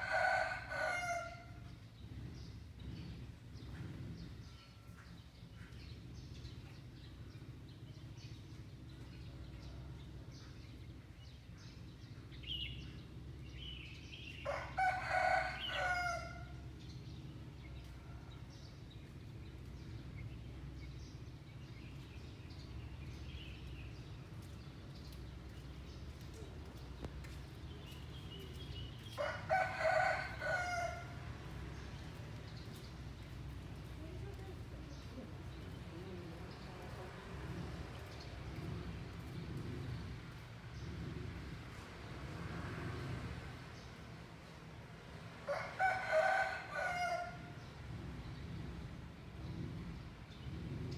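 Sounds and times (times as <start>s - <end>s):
rooster crowing: 0.0s - 1.6s, 14.5s - 16.5s, 29.2s - 31.2s, 45.5s - 47.6s
small birds chirping: 16.8s - 29.4s, 30.2s - 41.5s.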